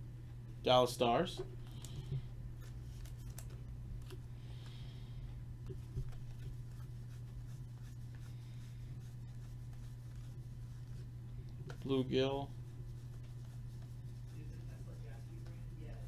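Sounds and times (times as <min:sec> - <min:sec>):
steady low hum: 0:00.0 - 0:16.0
cards sliding: 0:02.6 - 0:04.2.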